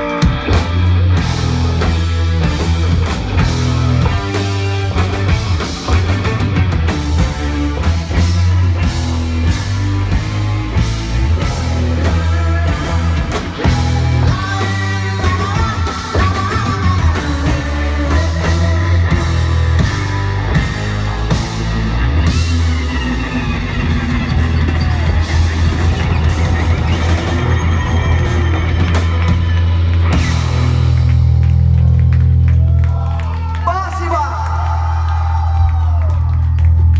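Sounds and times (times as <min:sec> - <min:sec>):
rock band playing live: 0:00.0 - 0:33.6
person singing: 0:11.8 - 0:19.7.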